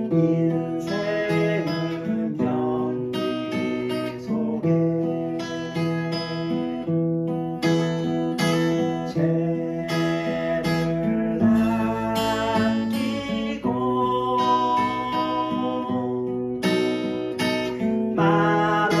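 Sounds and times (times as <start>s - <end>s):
acoustic guitar playing chords: 0.0s - 19.0s.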